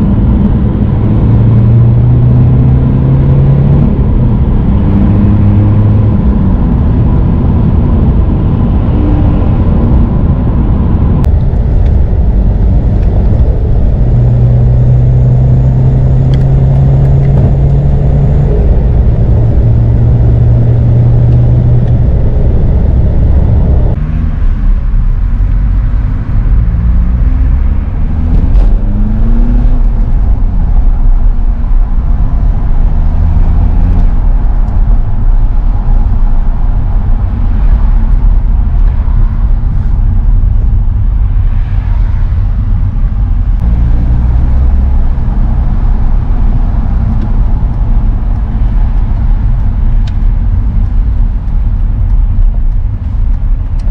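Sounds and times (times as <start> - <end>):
loud diesel car exhaust: 0.0 - 53.9.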